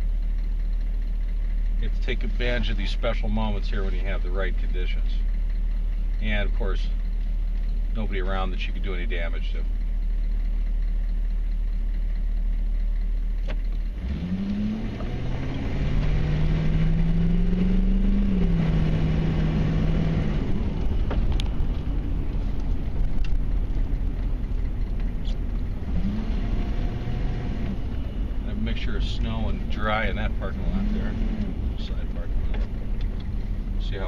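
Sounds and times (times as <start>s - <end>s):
diesel truck engine revving: 0.0s - 34.0s
rushing road noise: 12.2s - 34.0s.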